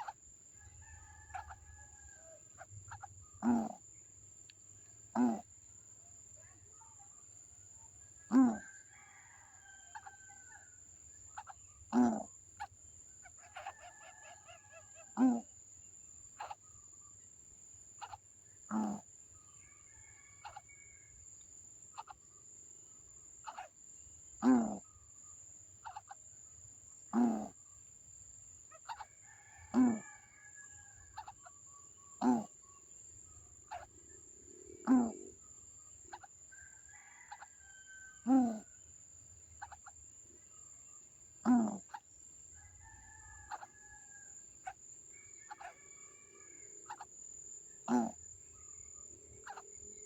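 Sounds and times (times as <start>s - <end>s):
high chattering calls: 2.5s - 3.8s, 16.4s - 16.6s, 18.0s - 19.0s, 23.4s - 23.8s, 33.7s - 34.0s, 36.0s - 36.3s, 45.4s - 45.9s, 49.4s - 50.0s
animal loud short call: 38.3s - 38.6s.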